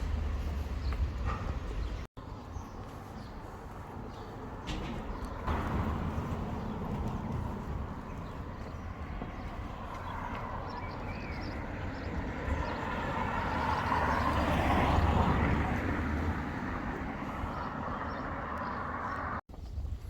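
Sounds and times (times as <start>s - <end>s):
vehicle passing by: 5.5s - 19.4s.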